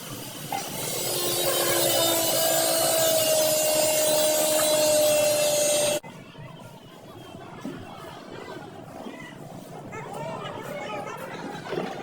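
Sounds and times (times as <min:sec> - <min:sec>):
abrasive power tool on metal: 0:00.1 - 0:06.0.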